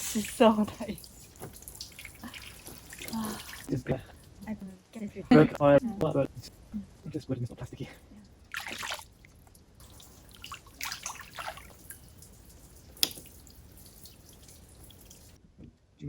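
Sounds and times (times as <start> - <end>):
water splashing and dripping: 0.0 - 4.5, 8.2 - 15.4.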